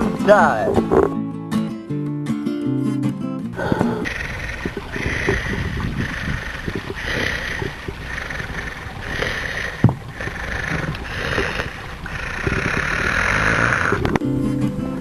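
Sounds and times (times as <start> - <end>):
music with held notes: 0.0 - 4.0, 14.0 - 15.0.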